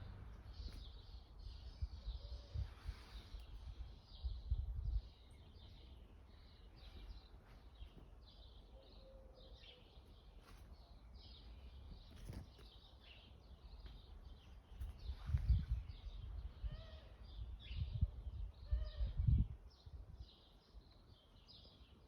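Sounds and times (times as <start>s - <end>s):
low rumble: 0.0s - 1.0s.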